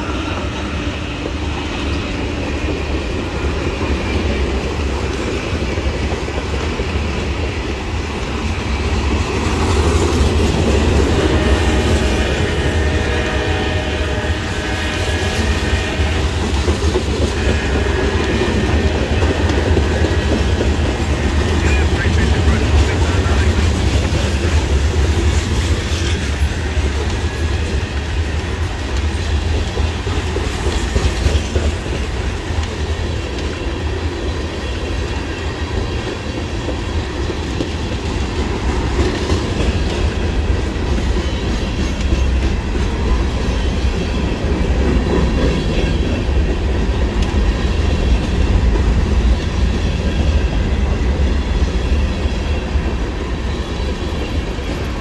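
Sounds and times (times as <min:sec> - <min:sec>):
freight train rumbling past: 0:00.0 - 0:55.0
wheels clacking over rail joints: 0:14.2 - 0:50.5.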